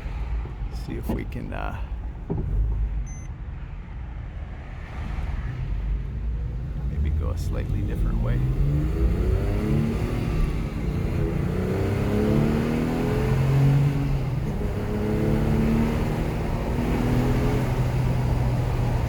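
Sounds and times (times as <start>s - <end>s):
car engine accelerating: 4.7s - 19.0s.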